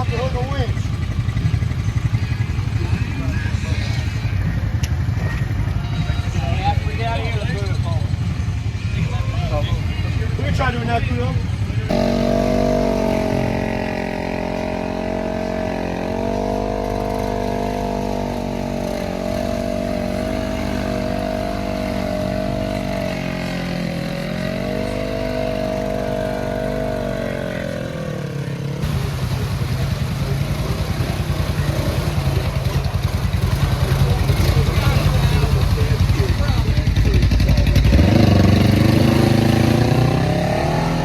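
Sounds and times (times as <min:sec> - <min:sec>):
atv engine revving: 0:00.0 - 0:41.0.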